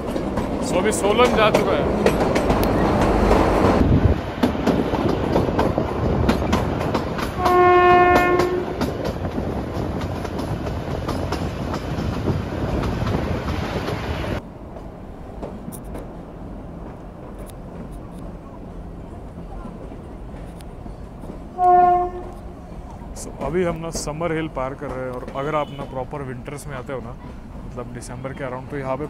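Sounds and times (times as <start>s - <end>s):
wheels clicking over rail joints: 0.0s - 14.1s, 14.7s - 27.7s
train rumbling: 0.0s - 29.0s
train horn: 7.4s - 8.8s, 21.6s - 22.4s.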